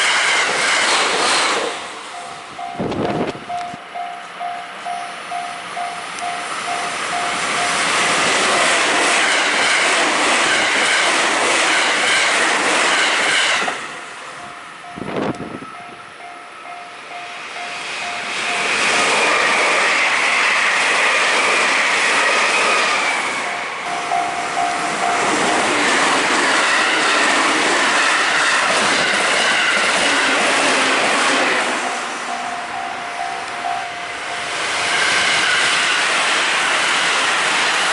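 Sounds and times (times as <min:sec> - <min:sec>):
train wheels clattering on rails: 0:00.0 - 0:04.6, 0:05.3 - 0:37.9
crossing warning bell dinging: 0:02.0 - 0:08.5, 0:14.0 - 0:20.0, 0:23.3 - 0:35.8.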